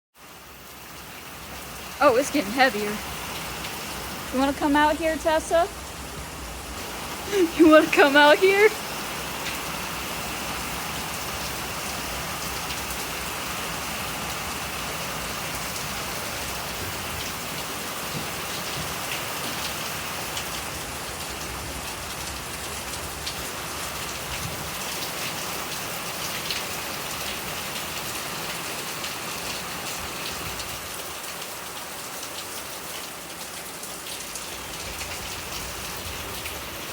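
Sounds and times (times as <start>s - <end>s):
heavy rain falling: 0.2s - 36.9s
individual raindrop ticks: 21.3s - 36.7s.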